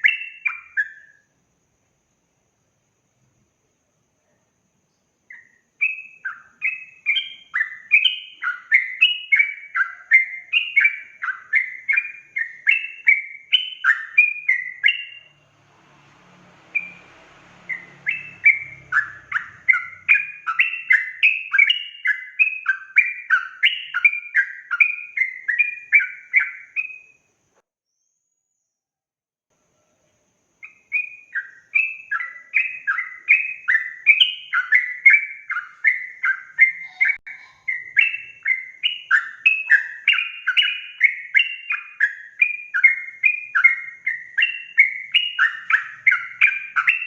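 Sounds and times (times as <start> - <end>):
bulbul singing: 0.0 - 1.3, 4.2 - 27.3, 30.6 - 47.0.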